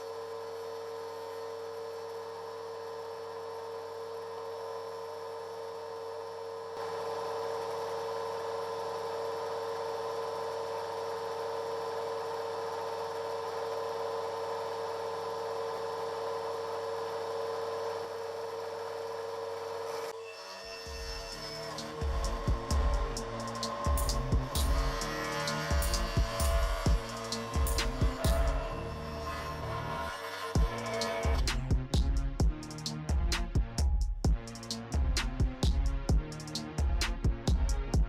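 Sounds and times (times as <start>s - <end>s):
steady machine hum: 0.0s - 20.2s, 20.8s - 38.0s.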